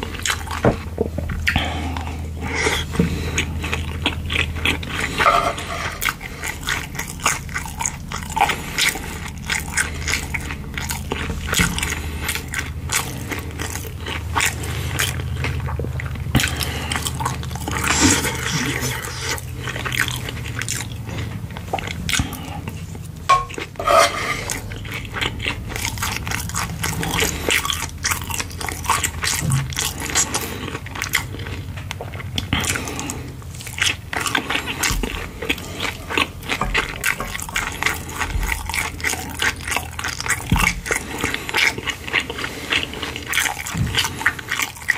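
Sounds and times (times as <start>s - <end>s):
close chewing with mouth clicks: 0.0s - 44.9s
low steady hum: 0.0s - 44.9s
wooden spoon scraping frying pan: 5.2s - 6.0s, 23.3s - 24.6s.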